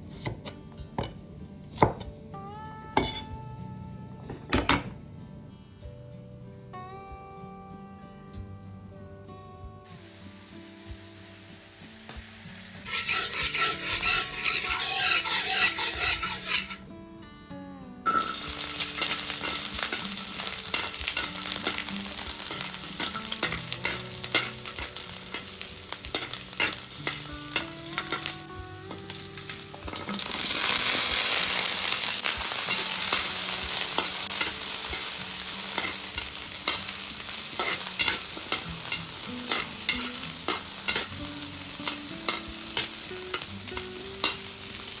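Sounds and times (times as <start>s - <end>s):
food sizzling in a pan: 9.8s - 16.8s, 18.1s - 45.0s
utensil scraping against pan: 12.8s - 16.8s, 18.1s - 45.0s.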